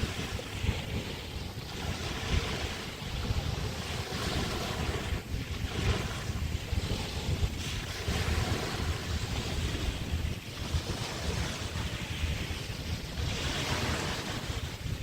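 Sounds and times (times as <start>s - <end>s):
small waves washing ashore: 0.0s - 15.0s
wind buffeting microphone: 0.0s - 15.0s.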